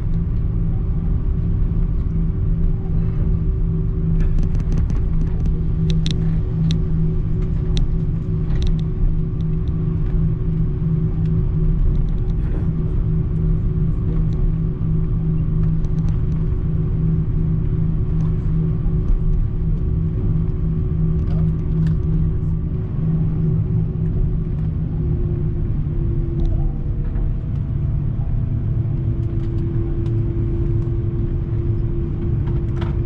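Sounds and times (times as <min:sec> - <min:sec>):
airplane engine rumble: 0:00.0 - 0:33.0
constant hum: 0:00.0 - 0:33.0
faint scattered clicks: 0:04.2 - 0:06.8, 0:07.4 - 0:10.2, 0:11.3 - 0:12.5.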